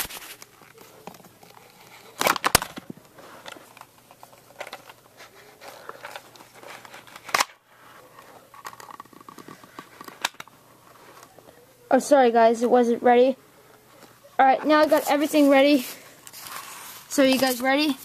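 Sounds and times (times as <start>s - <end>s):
hard plastic clicks: 8.6s - 10.5s.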